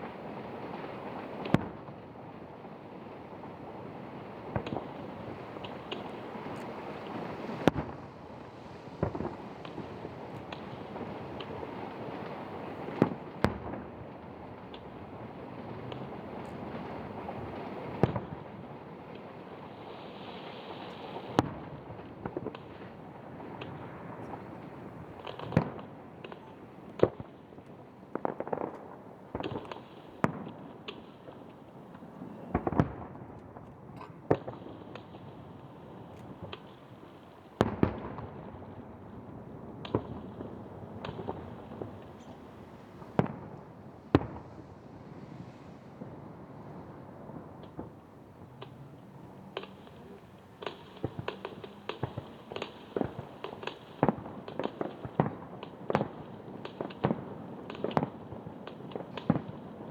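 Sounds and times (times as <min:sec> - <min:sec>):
fireworks bursting: 0:19.4 - 0:43.6, 0:44.2 - 0:59.9.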